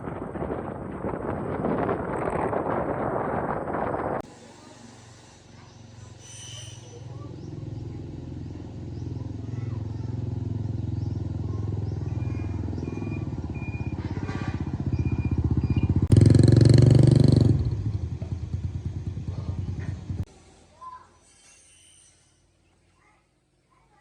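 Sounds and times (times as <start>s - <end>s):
engine running and revving: 7.1s - 20.3s.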